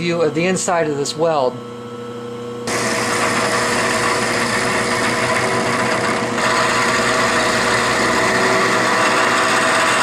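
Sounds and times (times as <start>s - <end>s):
machine hum: 0.0s - 10.0s
end mill cutting steel: 2.7s - 10.0s.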